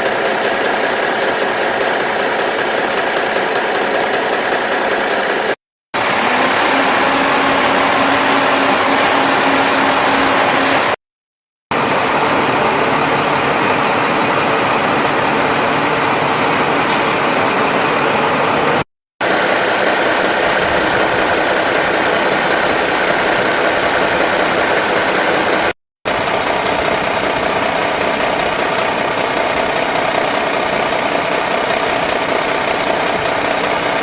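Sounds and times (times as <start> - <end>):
excavator diesel engine running: 0.0 - 11.0, 11.7 - 34.0.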